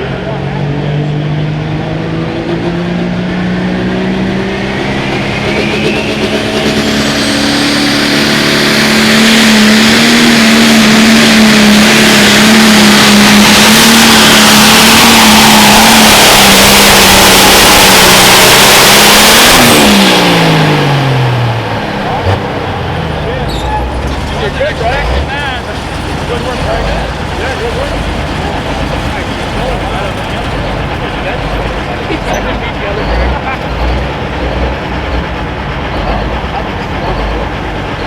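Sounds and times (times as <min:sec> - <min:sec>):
tractor engine under full load: 0:00.0 - 0:38.0
turbo whistle: 0:04.8 - 0:07.7.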